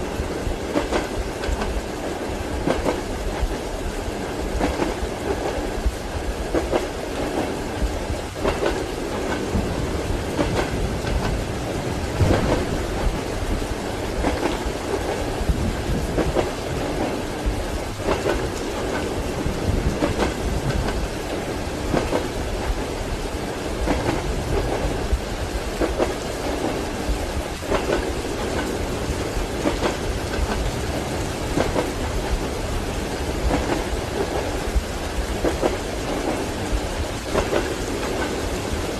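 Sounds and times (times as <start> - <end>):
rain: 0.0 - 38.9
train wheels clacking: 0.0 - 38.9
low thunder rumble: 7.8 - 36.3.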